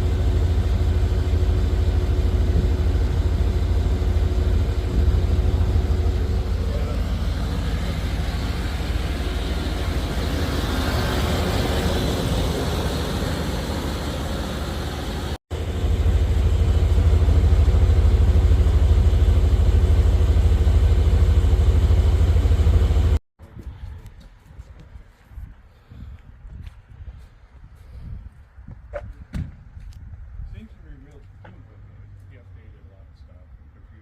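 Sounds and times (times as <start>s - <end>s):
car engine running: 0.0s - 23.2s.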